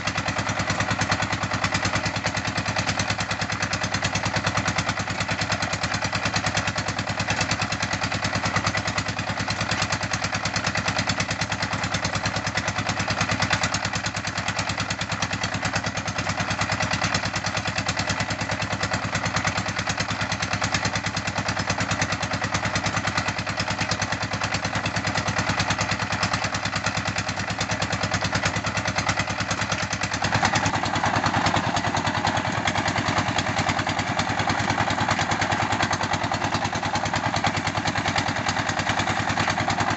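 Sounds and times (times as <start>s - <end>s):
brick making machine engine running: 27.7s - 39.9s.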